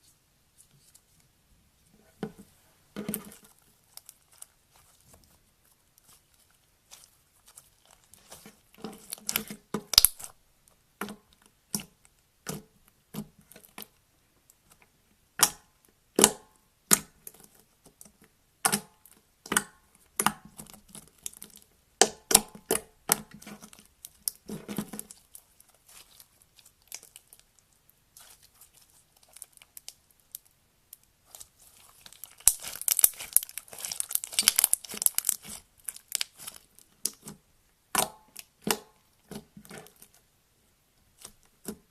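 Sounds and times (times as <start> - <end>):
slime crackling: 3.1 - 10.4, 20.2 - 40.3, 41.0 - 41.9
slime popping and clicking: 9.4 - 10.3, 32.2 - 37.3.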